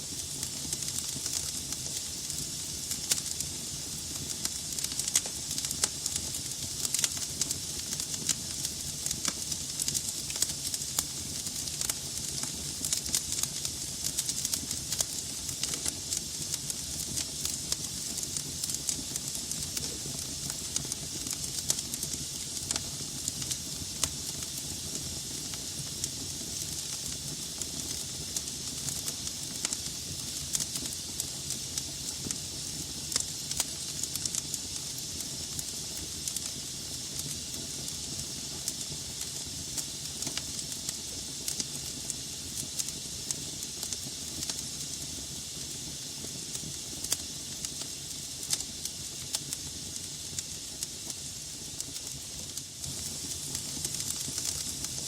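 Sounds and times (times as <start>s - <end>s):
hiss of flames: 0.0s - 55.0s
logs crackling and popping: 51.8s - 55.0s.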